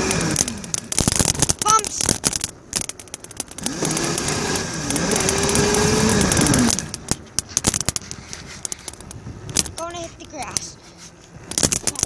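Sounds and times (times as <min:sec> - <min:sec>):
knocks and rattles: 0:00.0 - 0:10.7, 0:11.4 - 0:12.0
dirt bike motor whining: 0:00.0 - 0:12.0.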